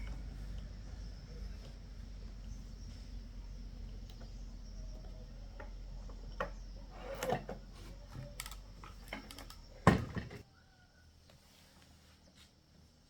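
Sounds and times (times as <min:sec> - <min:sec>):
tools and parts clicking: 0:08.1 - 0:10.3.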